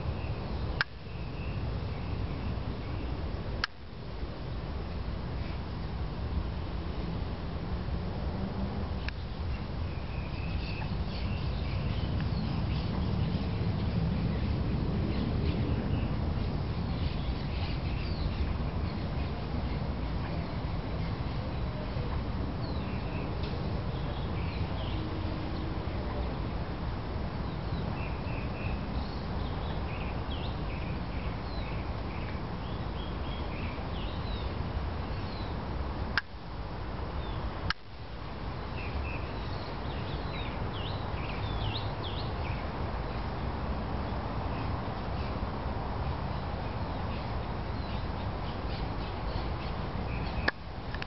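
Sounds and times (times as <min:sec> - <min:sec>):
small birds chirping: 0:09.0 - 0:26.4, 0:38.7 - 0:45.4, 0:46.0 - 0:51.0.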